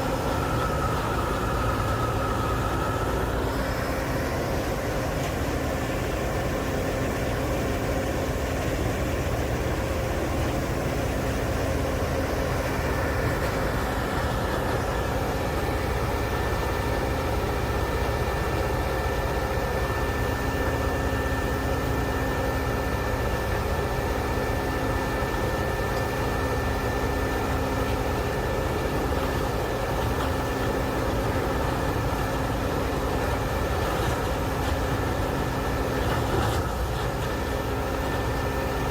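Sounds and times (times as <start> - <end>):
thin whine: 0.0 - 9.2
diesel engine rumbling: 0.0 - 38.9.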